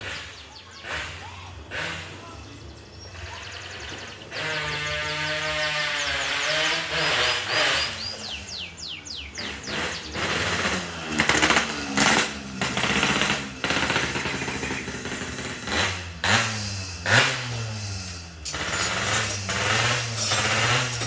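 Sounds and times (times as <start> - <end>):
two-stroke motorcycle engine revving: 0.0 - 21.0
exhaust crackling rattle: 6.0 - 21.0.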